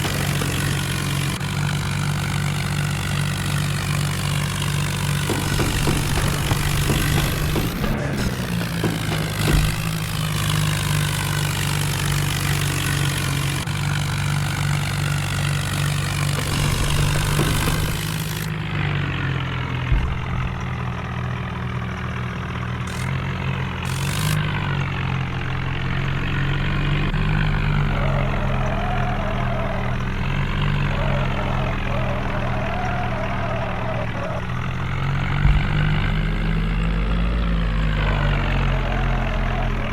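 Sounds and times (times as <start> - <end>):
tractor engine droning: 0.0 - 39.9
short thump: 5.2 - 11.4, 19.9 - 21.2, 35.0 - 36.5.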